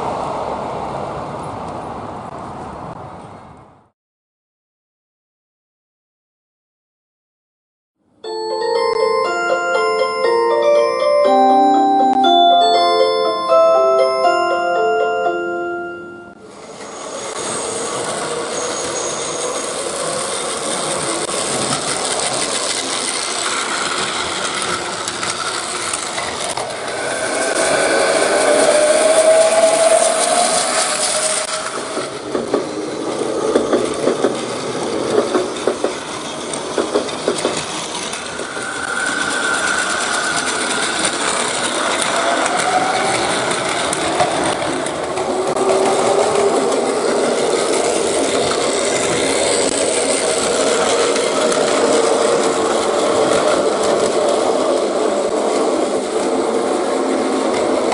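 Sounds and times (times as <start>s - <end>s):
train running noise: 8.3s - 57.9s
rhythmic clicks over rail joints: 16.7s - 57.9s.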